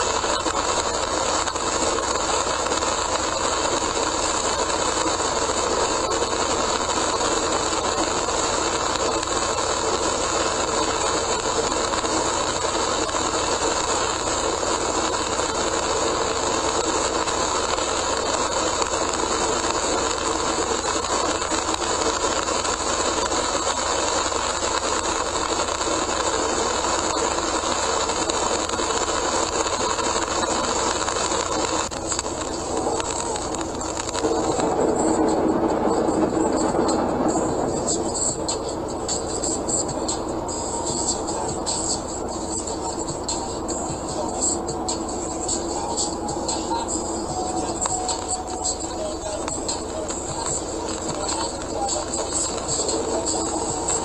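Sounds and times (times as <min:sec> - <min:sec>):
tyre spray and rain hiss: 0:00.0 - 0:54.0
car driving on wet road: 0:27.5 - 0:54.0.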